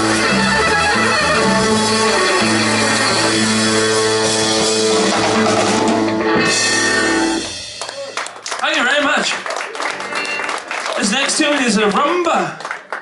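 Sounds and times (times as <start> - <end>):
live rock band playing: 0.0 - 8.6, 9.5 - 11.8.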